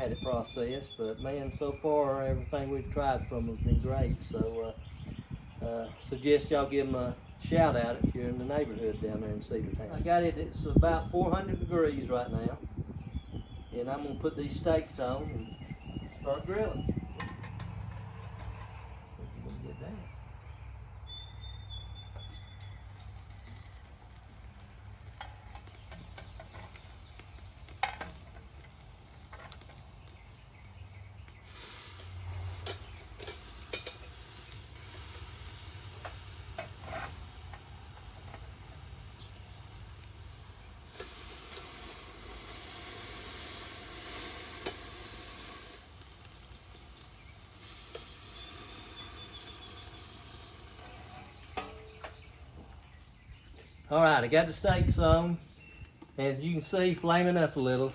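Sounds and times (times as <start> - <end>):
steaks sizzling on grill: 22.2 - 57.9.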